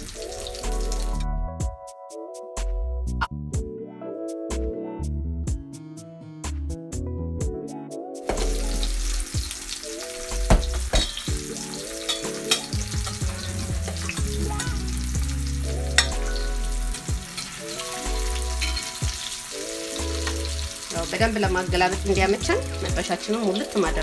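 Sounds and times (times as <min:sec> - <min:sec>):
potatoes sizzling in hot oil: 0:00.0 - 0:01.2, 0:08.3 - 0:24.0
soft background music: 0:00.0 - 0:24.0
oil popping: 0:10.2 - 0:14.9.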